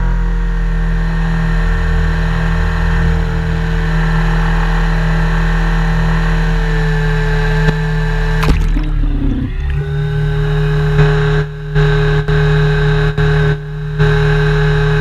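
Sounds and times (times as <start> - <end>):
high steady whine: 7.2 - 15.0
helicopter running: 8.2 - 11.6.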